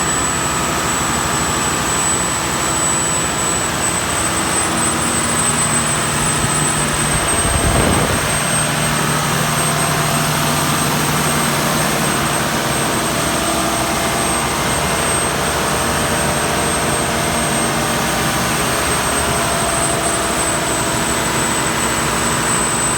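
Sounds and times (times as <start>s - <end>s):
diesel generator running: 0.0s - 22.9s
high whine: 0.0s - 22.9s.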